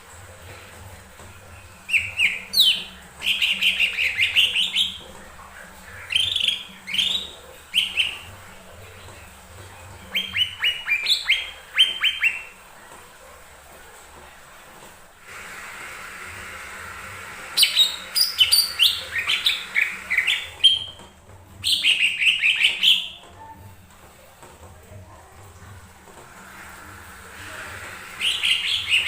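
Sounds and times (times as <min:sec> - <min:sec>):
bird chirping: 0:01.9 - 0:05.0, 0:06.1 - 0:08.3, 0:21.6 - 0:23.2.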